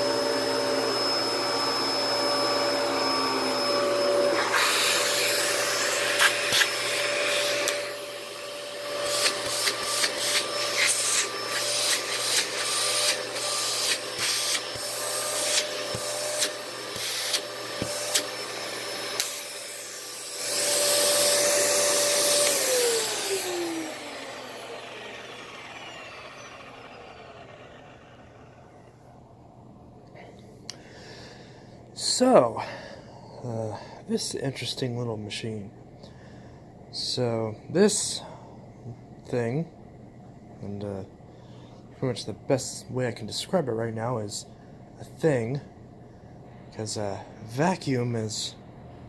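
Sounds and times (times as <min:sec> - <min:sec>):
vacuum cleaner running on carpet: 0:00.0 - 0:29.0
vacuum motor spinning down: 0:00.0 - 0:29.4.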